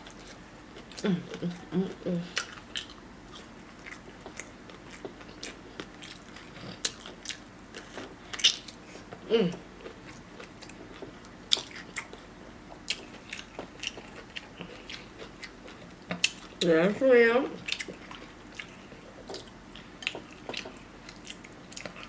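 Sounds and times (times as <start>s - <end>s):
biting and chewing: 17.6s - 22.0s.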